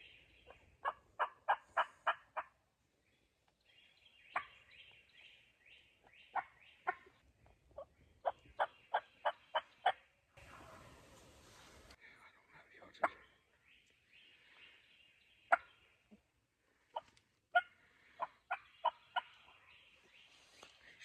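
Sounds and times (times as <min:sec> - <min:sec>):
turkey yelping: 0:00.4 - 0:02.5
small bird chirping: 0:03.1 - 0:10.1, 0:18.2 - 0:21.0.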